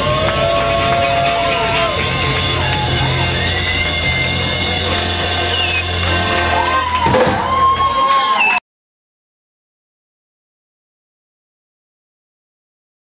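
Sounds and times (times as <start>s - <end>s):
steady bass: 0.0s - 8.0s
live rock band: 0.0s - 8.3s
sustained guitar notes: 1.3s - 7.1s.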